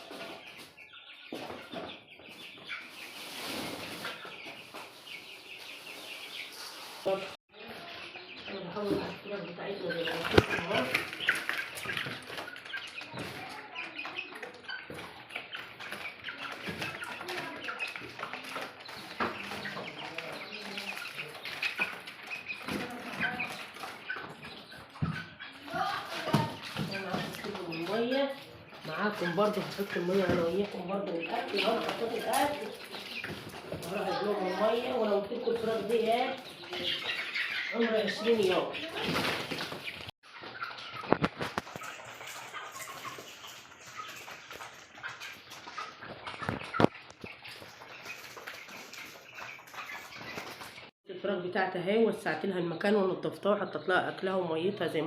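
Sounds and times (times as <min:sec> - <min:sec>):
chicks peeping: 0:00.0 - 0:55.0
rustling: 0:02.4 - 0:07.4
knocks and rustling: 0:10.1 - 0:30.8.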